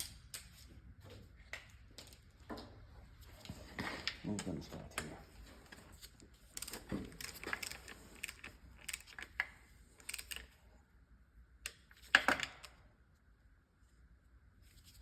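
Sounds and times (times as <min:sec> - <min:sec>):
wrench clicking on bolts: 0:10.0 - 0:10.5.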